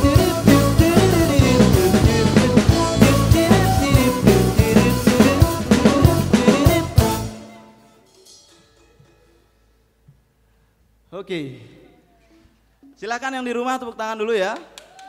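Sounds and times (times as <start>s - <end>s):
fusion band playing: 0.0s - 8.4s
drum beats: 0.0s - 9.2s.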